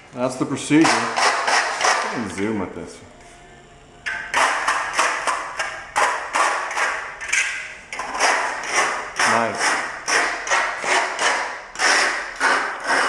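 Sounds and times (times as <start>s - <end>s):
hand trowel scraping concrete: 0.8s - 2.4s, 6.0s - 13.0s.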